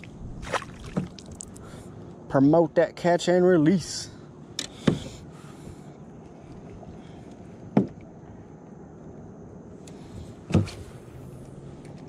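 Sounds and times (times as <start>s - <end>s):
sharp knocks on kayak: 7.7s - 8.0s.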